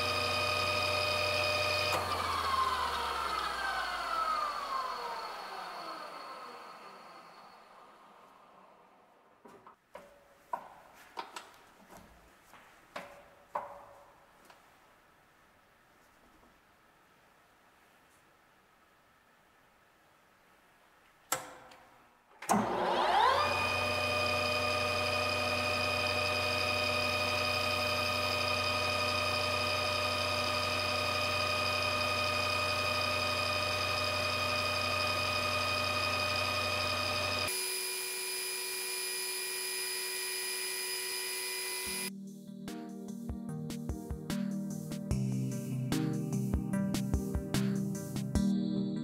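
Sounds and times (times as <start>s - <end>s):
drill bit boring into workpiece: 0.0s - 7.8s, 22.5s - 42.1s
lathe start click: 0.0s - 8.8s, 22.4s - 42.1s
lathe motor whine: 0.0s - 9.4s, 22.5s - 42.1s.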